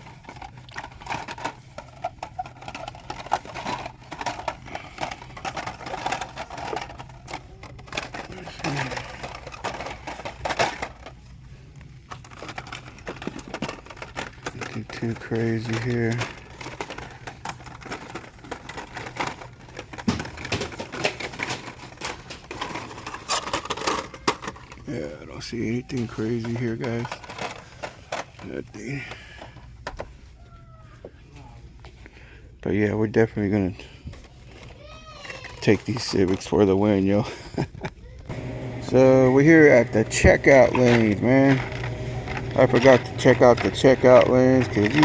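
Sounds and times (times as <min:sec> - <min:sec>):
plastic blister packs clicking and rattling: 0:00.0 - 0:30.4, 0:31.8 - 0:45.0
faint steady hum: 0:37.3 - 0:45.0.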